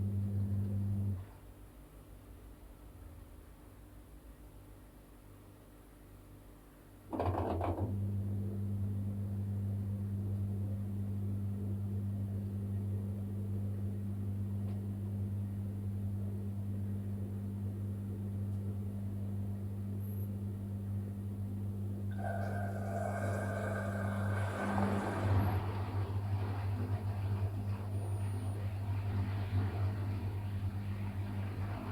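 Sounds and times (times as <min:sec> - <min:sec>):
washing machine clatter: 0:07.1 - 0:07.9, 0:22.1 - 0:31.9
washing machine humming: 0:15.3 - 0:31.9
washing machine whirring and sloshing: 0:18.8 - 0:31.9.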